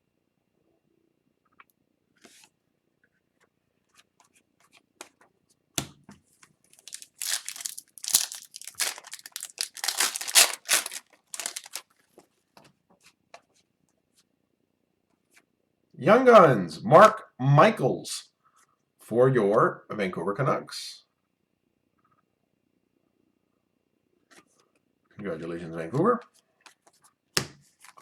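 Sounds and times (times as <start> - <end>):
foil wrapper tearing and crinkling: 6.8 - 11.8.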